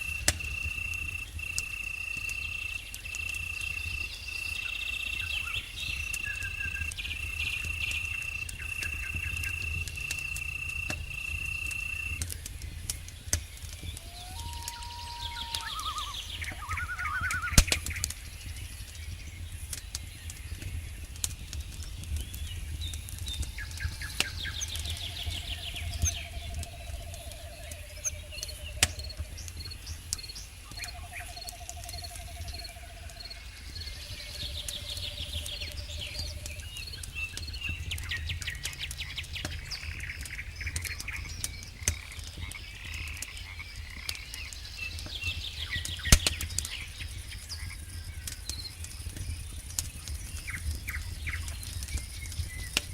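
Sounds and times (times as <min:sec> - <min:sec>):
frogs trilling: 0:00.0 - 0:12.3, 0:14.0 - 0:18.2, 0:23.5 - 0:45.0
insects chirping: 0:00.0 - 0:20.6, 0:22.6 - 0:52.8
birds chirping: 0:00.0 - 0:52.9
campfire crackling and popping: 0:00.0 - 0:52.9.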